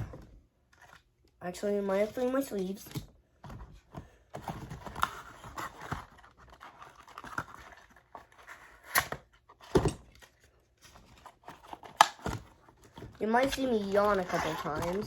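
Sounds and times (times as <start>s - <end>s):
packaging rustling and tearing: 4.4s - 15.0s.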